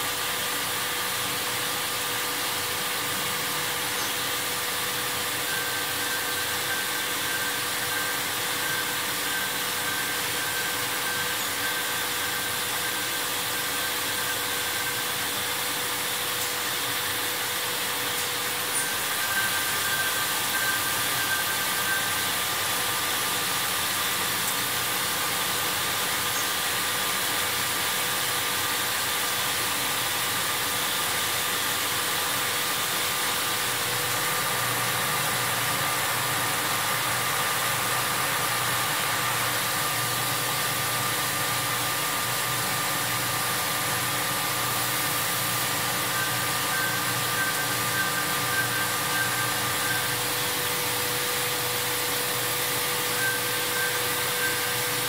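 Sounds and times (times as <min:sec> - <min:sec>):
machine cutting hiss: 0:00.0 - 0:55.0
faint whining tones: 0:33.4 - 0:55.0.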